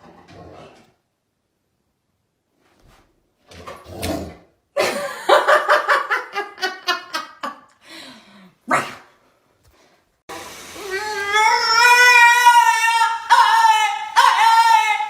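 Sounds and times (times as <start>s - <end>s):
person laughing: 4.8s - 7.8s.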